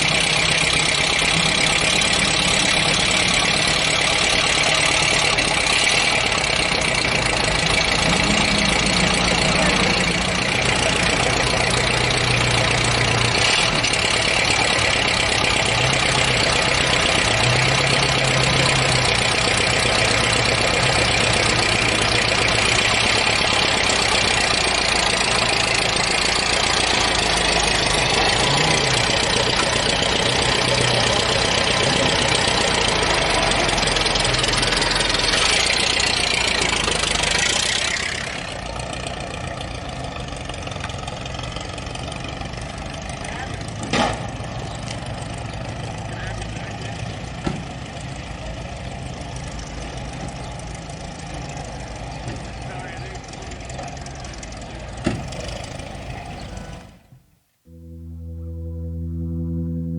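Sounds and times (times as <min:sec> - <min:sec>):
vehicle engine running: 0:00.0 - 0:59.9
dense noise: 0:01.2 - 0:14.7, 0:55.1 - 0:59.9.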